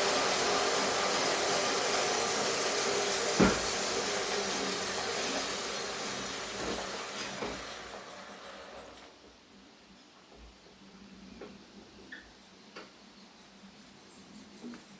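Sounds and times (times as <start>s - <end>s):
sawmill running hiss: 0.0s - 9.2s.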